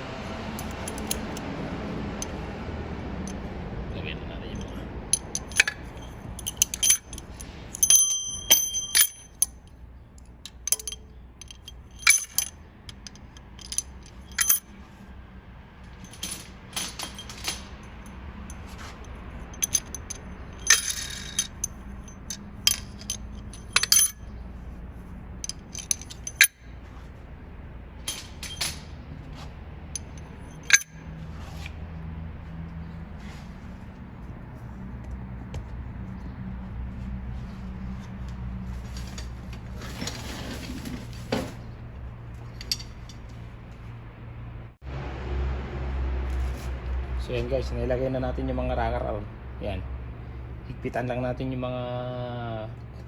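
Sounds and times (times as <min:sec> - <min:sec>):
metal rocker arms clinking: 0:00.5 - 0:01.5, 0:04.5 - 0:14.8, 0:15.8 - 0:27.2, 0:28.0 - 0:31.8, 0:38.0 - 0:41.7, 0:42.3 - 0:43.8.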